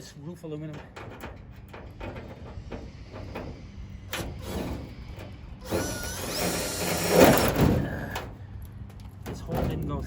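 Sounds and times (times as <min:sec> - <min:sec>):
impact driver whining: 0:04.1 - 0:08.3.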